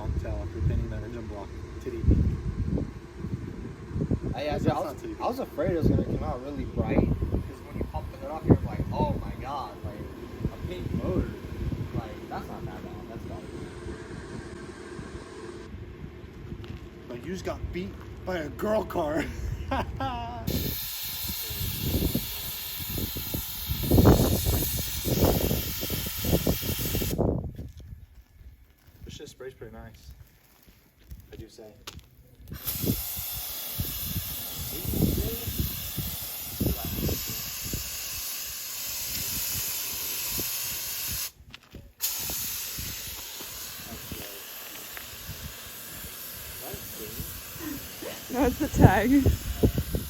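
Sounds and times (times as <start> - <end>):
spray can hissing: 20.5 - 27.2, 32.5 - 41.4, 42.0 - 50.0.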